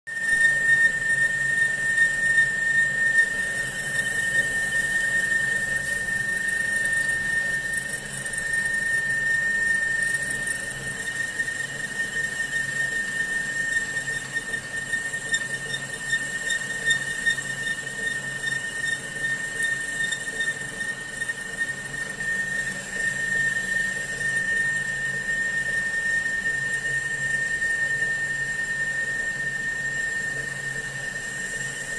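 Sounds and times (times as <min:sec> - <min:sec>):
cutting tool squealing through steel: 0:00.1 - 0:31.9.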